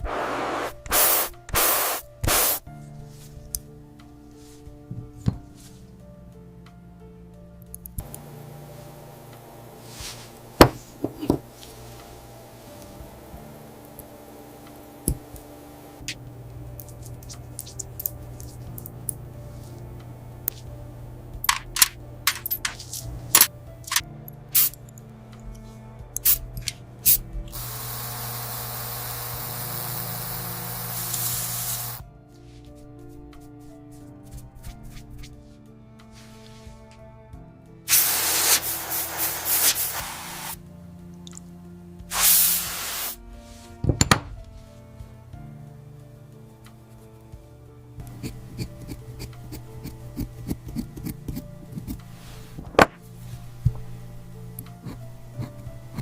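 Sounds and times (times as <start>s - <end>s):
spraying hiss: 0.0s - 2.7s, 24.6s - 24.8s, 27.1s - 32.0s, 37.9s - 40.6s, 42.1s - 43.2s
soft background music: 0.0s - 56.0s
hand tools clicking and tapping: 21.4s - 24.0s, 48.1s - 52.1s, 54.6s - 56.0s.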